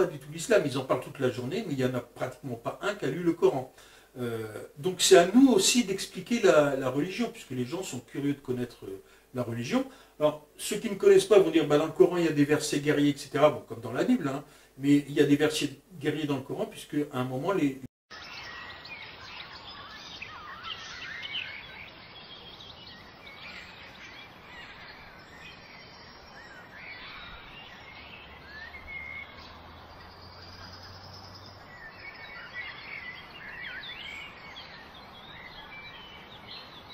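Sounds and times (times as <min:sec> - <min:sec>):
background hiss: 0:00.0 - 0:36.9
birds chirping and singing: 0:18.1 - 0:36.9.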